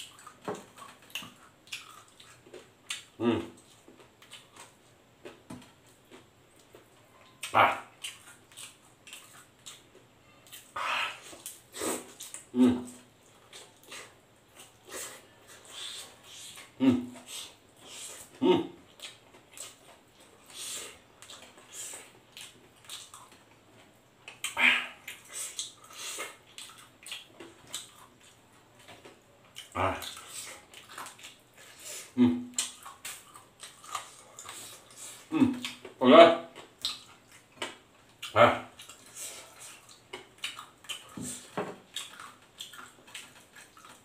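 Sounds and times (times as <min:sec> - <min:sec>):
soft chewing: 0:00.0 - 0:44.0.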